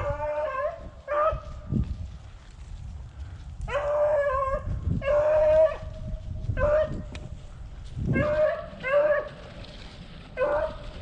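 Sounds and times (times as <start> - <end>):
hound baying: 3.7 - 5.9, 6.6 - 7.1, 8.1 - 9.6, 10.4 - 11.0.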